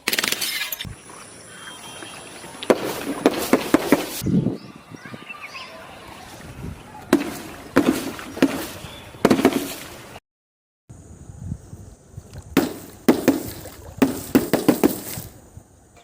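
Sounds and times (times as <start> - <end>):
objects being crushed: 0.0 - 0.9.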